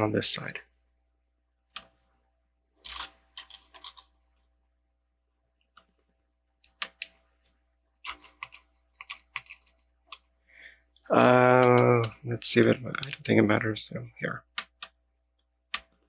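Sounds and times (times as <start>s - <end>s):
plastic bricks clicking: 2.8s - 4.1s, 8.1s - 10.2s.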